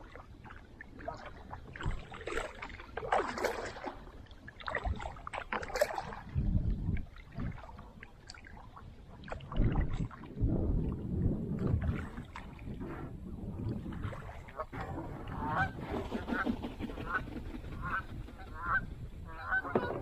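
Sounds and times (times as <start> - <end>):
water splashing against boat: 0.0 - 20.0
wind gusting on microphone: 5.9 - 7.9, 9.4 - 20.0.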